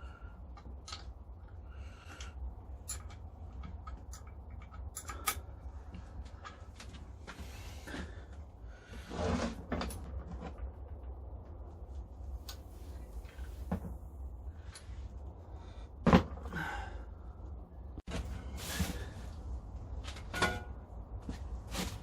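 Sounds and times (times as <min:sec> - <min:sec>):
steady low hum: 0:00.0 - 0:22.0
metal parts clicking and knocking: 0:02.8 - 0:05.7.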